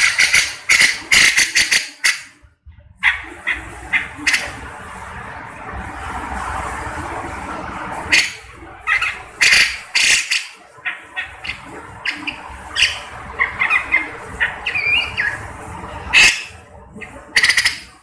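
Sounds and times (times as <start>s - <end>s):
bird squawking calls: 0.0s - 2.3s, 3.0s - 4.6s, 8.1s - 15.5s, 16.1s - 18.0s.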